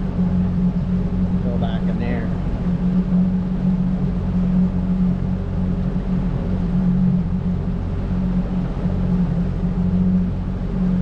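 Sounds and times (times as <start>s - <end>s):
motorboat engine droning: 0.0s - 11.0s.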